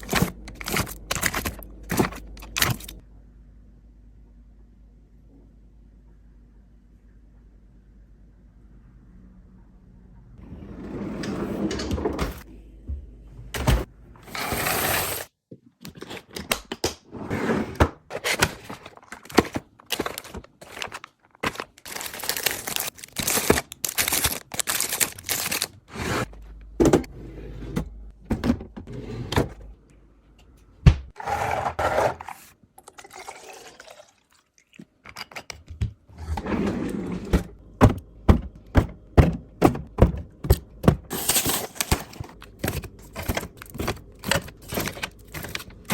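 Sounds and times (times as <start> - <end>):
plastic containers being handled: 0.0 - 3.0, 18.1 - 27.1, 37.7 - 45.9.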